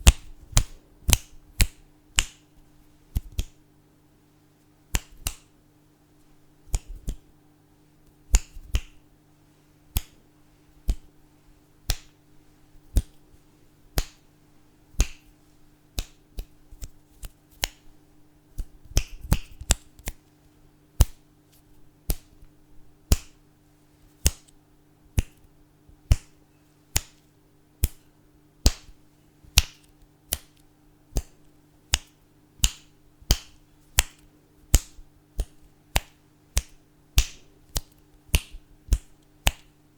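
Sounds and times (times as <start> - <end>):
fingers snapping: 0.0 - 2.5, 3.1 - 3.6, 4.9 - 5.5, 6.6 - 7.2, 8.0 - 9.0, 9.9 - 10.2, 10.8 - 11.1, 11.8 - 12.2, 12.9 - 13.2, 14.0 - 14.2, 15.0 - 15.3, 16.0 - 17.9, 18.6 - 20.2, 21.0 - 22.5, 23.1 - 23.4, 24.2 - 25.5, 26.1 - 39.7.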